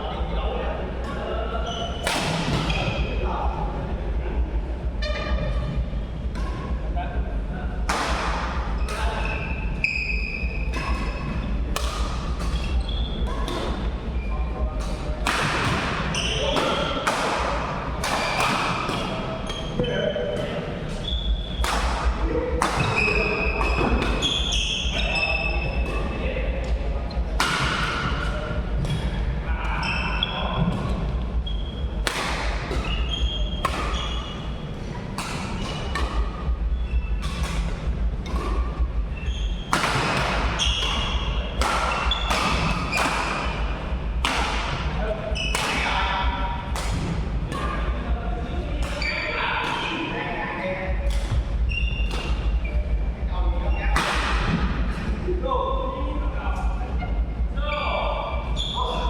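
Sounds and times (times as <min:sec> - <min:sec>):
low hall hum: 0:00.0 - 0:59.0
rackets striking shuttlecock: 0:01.0 - 0:03.1, 0:06.3 - 0:06.7, 0:07.8 - 0:14.0, 0:14.8 - 0:29.2, 0:29.8 - 0:50.2, 0:51.0 - 0:52.7, 0:53.9 - 0:55.1
shoe squeaks on court floor: 0:01.1 - 0:03.1, 0:08.7 - 0:11.4, 0:12.4 - 0:14.4, 0:16.0 - 0:17.0, 0:18.2 - 0:21.7, 0:22.8 - 0:26.2, 0:29.8 - 0:31.9, 0:32.8 - 0:34.6, 0:38.3 - 0:43.6, 0:45.3 - 0:46.0, 0:48.9 - 0:50.1, 0:51.7 - 0:53.0, 0:57.7 - 0:59.0.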